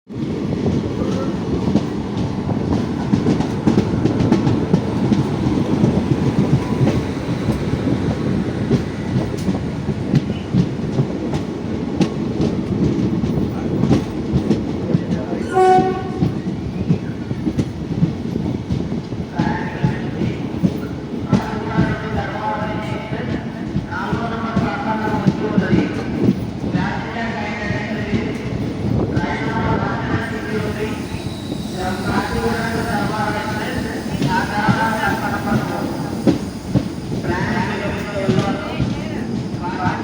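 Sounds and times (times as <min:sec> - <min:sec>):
train rumbling: 0:00.1 - 0:40.0
train horn blast: 0:15.4 - 0:16.4.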